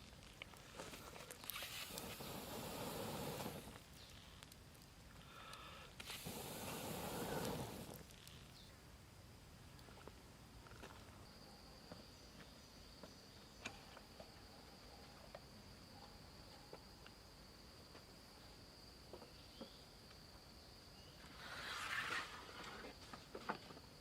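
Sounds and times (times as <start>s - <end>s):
cricket-like insect singing: 5.3s - 8.7s.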